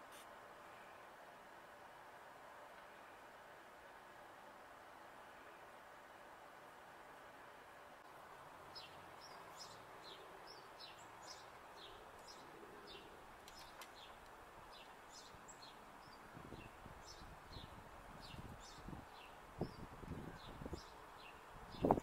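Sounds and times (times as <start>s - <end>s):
steady hiss: 0.0s - 22.0s
small birds chirping: 8.7s - 22.0s.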